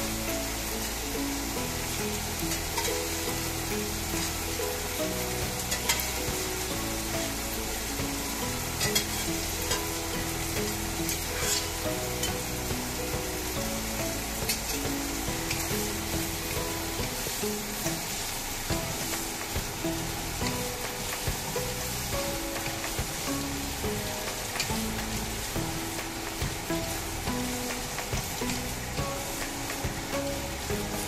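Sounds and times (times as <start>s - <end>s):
food sizzling in a wok: 0.0s - 31.0s
soft background music: 0.0s - 31.0s.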